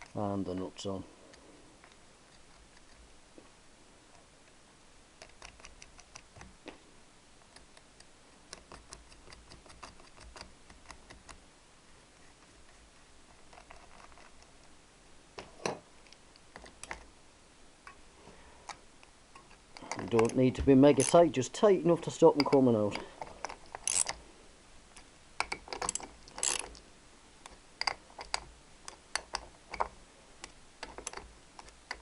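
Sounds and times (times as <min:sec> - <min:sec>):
light metallic clicks and ticks: 0:18.6 - 0:21.3, 0:22.3 - 0:24.2.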